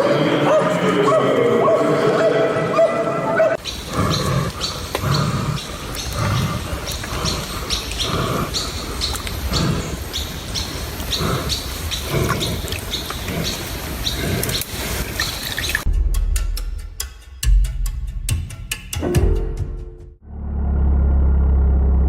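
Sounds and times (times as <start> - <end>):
birds chirping: 0.0 - 15.9.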